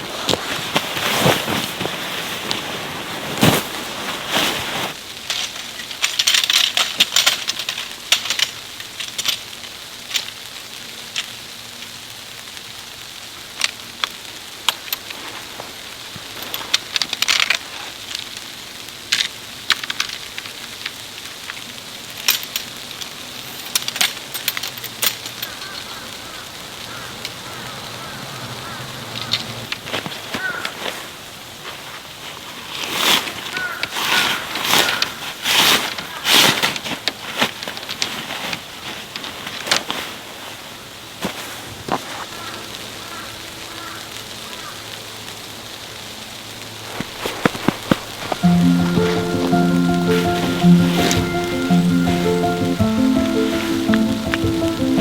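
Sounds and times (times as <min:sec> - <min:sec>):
snowstorm hiss: 0:00.0 - 0:06.2, 0:38.6 - 0:55.0.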